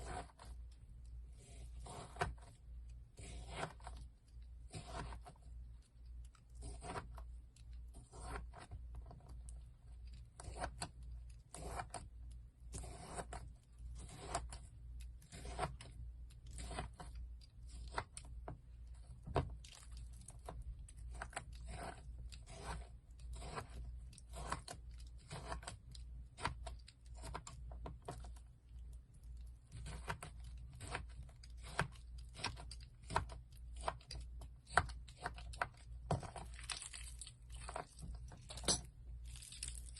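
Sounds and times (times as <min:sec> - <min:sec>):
slime crackling and popping: 0:36.4 - 0:38.0, 0:39.2 - 0:39.9.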